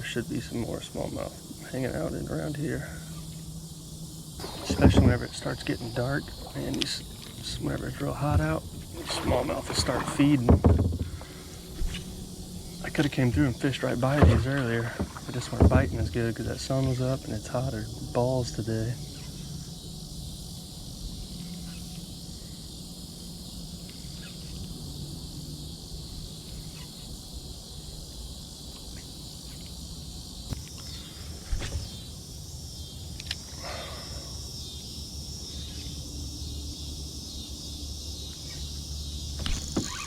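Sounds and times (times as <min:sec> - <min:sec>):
insects chirring: 0:00.0 - 0:40.0
sharp knocks: 0:04.4 - 0:07.4, 0:08.1 - 0:12.2, 0:12.9 - 0:16.2.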